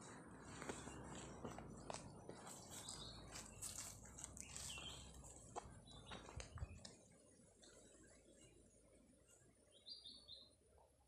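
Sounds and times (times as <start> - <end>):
faint open-air ambience: 0.0 - 11.0
bird chirps: 2.4 - 5.2, 9.3 - 10.6.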